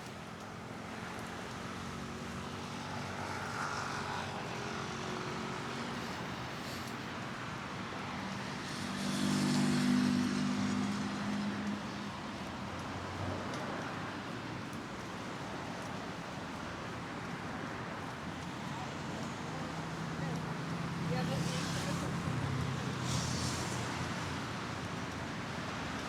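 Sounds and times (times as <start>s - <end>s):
passing cars: 8.4s - 11.9s.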